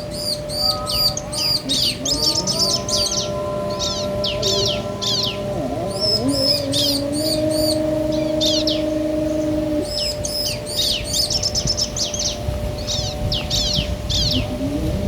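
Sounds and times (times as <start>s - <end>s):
bird trill: 0.0s - 15.0s
birds calling with high chirps: 0.0s - 15.0s.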